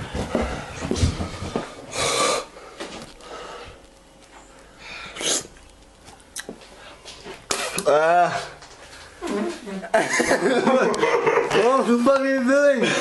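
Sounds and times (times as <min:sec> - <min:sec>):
person breathing hard: 0:00.0 - 0:03.8
person sniffing: 0:04.8 - 0:05.6.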